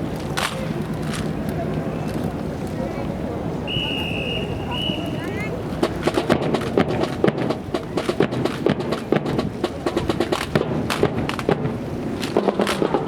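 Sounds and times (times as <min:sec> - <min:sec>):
rifles clacking and knocking: 0:00.1 - 0:02.8, 0:05.8 - 0:13.0.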